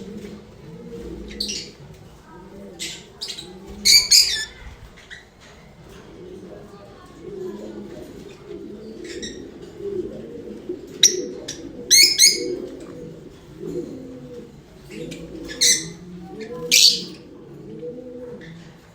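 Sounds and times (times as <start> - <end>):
low cooing warble: 6.2 - 18.9.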